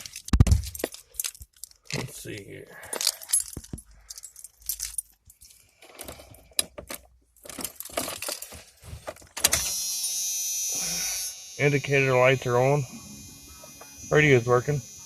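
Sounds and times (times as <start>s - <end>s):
keys jangling and clicking: 0.0s - 9.6s
steady buzzing hum: 9.6s - 15.0s.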